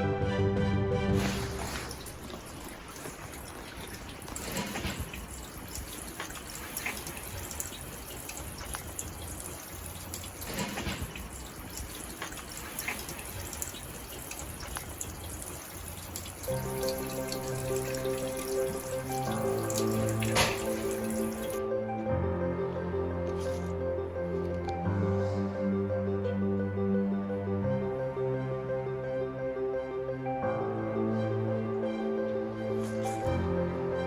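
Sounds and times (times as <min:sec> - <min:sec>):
water running and dripping: 0:01.2 - 0:21.6, 0:32.8 - 0:33.4.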